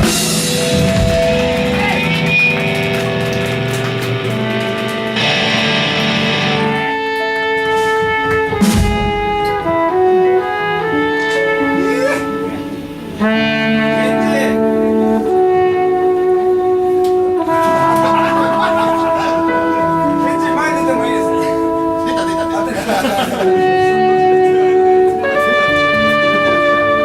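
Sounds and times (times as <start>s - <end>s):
live rock band music: 0.0s - 27.0s
sharp drum hit: 8.2s - 9.8s.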